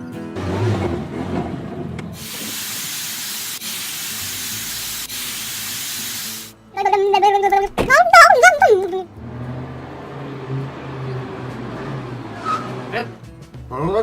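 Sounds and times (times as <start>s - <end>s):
steady hiss: 2.2s - 6.6s.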